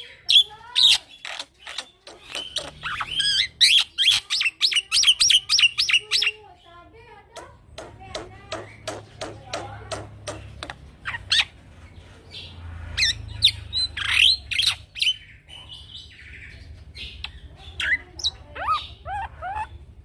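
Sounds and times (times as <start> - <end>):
bird whistling and squawking: 0.4 - 6.4.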